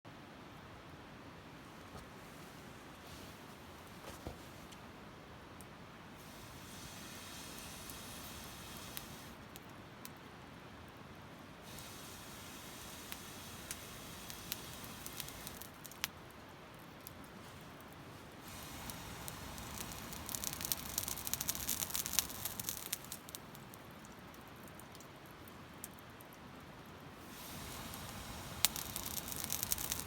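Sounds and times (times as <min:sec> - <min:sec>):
charcoal crackling and popping: 0:05.6 - 0:10.3, 0:11.5 - 0:30.0
breathy rush of air: 0:27.2 - 0:30.0.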